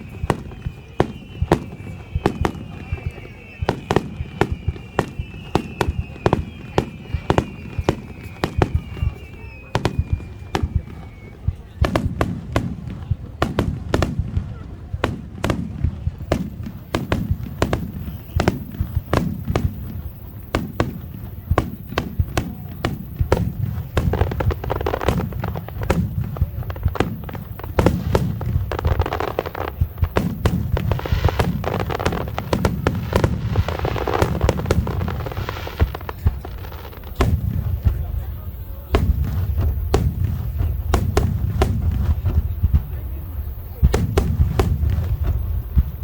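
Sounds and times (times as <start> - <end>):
fireworks shells bursting: 16.2 - 46.0.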